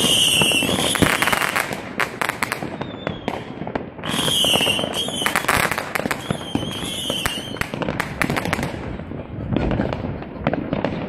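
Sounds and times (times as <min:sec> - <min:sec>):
wavering firework whistle: 0:00.0 - 0:01.7, 0:02.4 - 0:07.9
fireworks bangs and crackles: 0:00.0 - 0:11.0.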